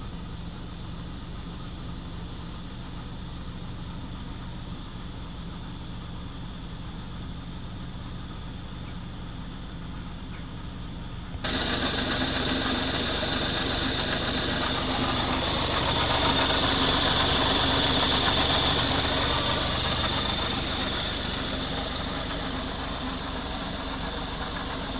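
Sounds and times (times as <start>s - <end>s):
car engine idling: 11.4s - 24.9s
whirring hiss: 11.5s - 24.9s.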